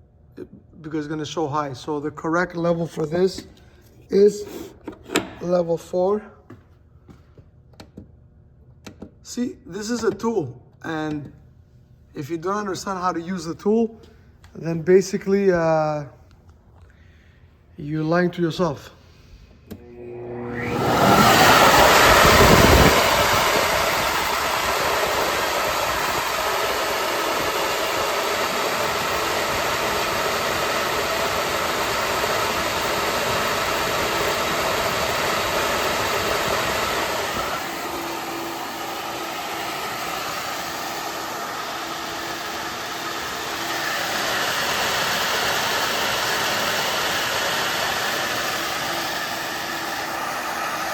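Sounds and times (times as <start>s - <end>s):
flow bench rushing air: 19.0s - 50.9s.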